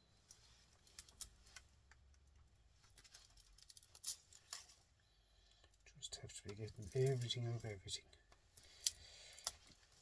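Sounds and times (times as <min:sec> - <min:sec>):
clicks of small parts handled: 0:08.8 - 0:09.8.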